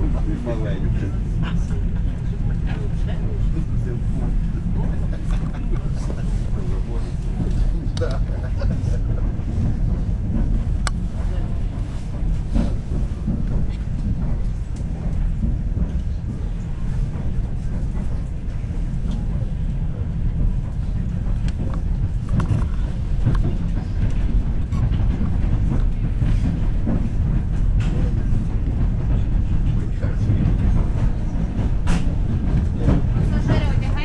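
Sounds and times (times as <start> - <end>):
train rumble from inside carriage: 0.0 - 34.0
wheels knocking on rails: 6.7 - 34.0.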